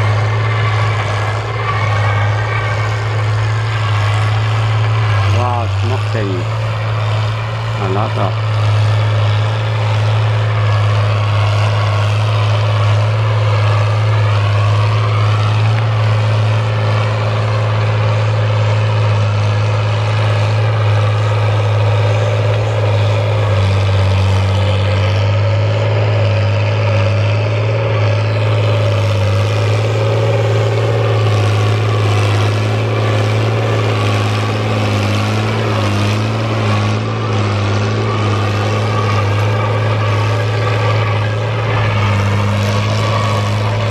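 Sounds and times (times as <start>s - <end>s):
tractor diesel engine under load: 0.0s - 43.9s.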